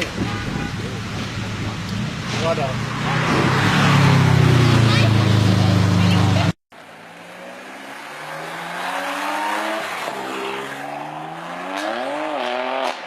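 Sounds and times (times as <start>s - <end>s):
car engine accelerating: 1.2s - 13.0s.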